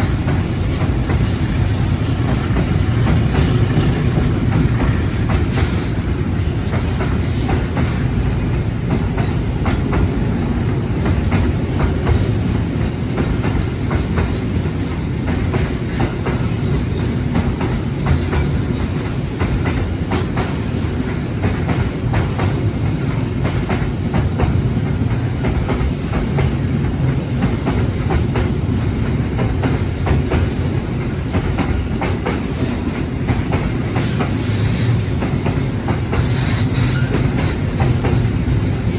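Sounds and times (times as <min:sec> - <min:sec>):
freight train wagons rumbling: 0:00.0 - 0:38.9
wheels clacking over rail joints: 0:00.0 - 0:38.9
high wheel squeal: 0:36.2 - 0:37.4.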